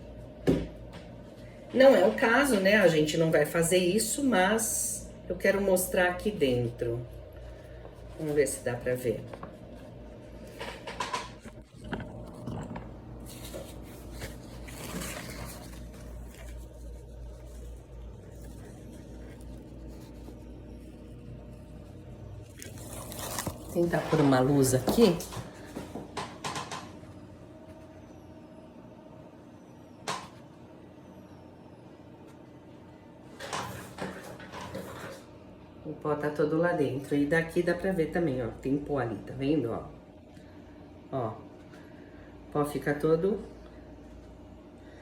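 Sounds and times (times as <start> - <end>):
steady low hum: 0.0 - 34.5, 35.1 - 45.0
plastic rustles and scrapes: 9.4 - 25.9.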